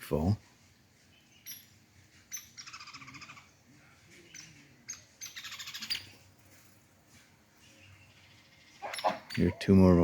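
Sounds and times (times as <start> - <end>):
bird rattling chatter: 1.4 - 3.4, 4.3 - 6.2.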